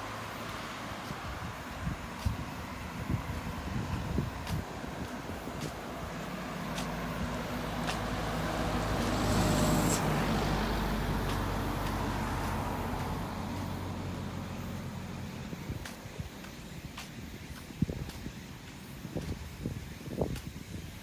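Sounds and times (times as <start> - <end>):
vehicle passing by: 0.0 - 15.8.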